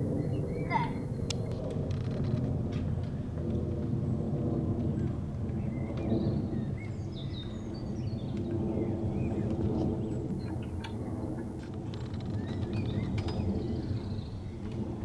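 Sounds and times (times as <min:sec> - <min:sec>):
birds chirping: 0:00.0 - 0:01.6, 0:12.0 - 0:14.7
steady low rumble: 0:00.0 - 0:15.0.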